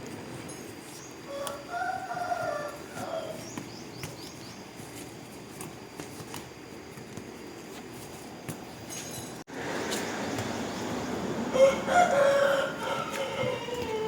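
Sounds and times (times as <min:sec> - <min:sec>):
rooster crowing: 0:01.3 - 0:03.5, 0:11.5 - 0:14.0
small birds chirping: 0:02.7 - 0:05.2.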